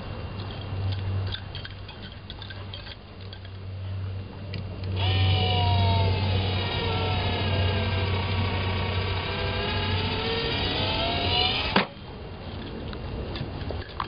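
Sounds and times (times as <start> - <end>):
motor humming: 4.8 - 12.1.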